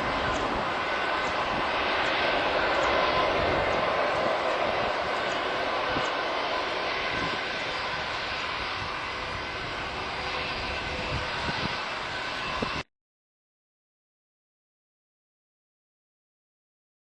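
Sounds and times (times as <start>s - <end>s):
jet engines roaring with fan whine: 0.0s - 12.9s.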